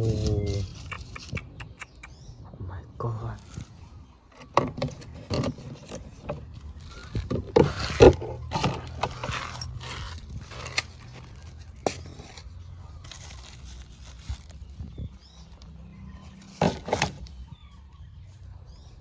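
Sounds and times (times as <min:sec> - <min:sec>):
handling scrapes and rustling: 0:00.0 - 0:01.4, 0:03.4 - 0:19.0.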